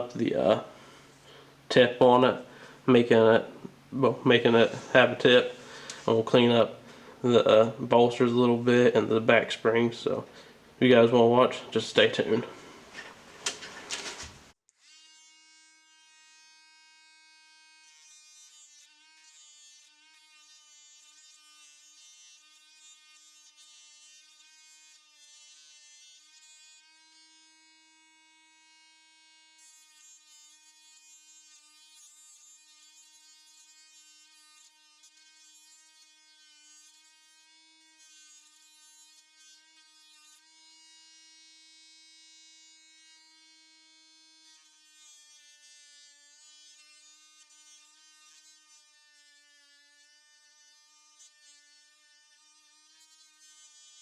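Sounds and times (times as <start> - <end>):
small power tool buzzing: 11.5 - 54.0.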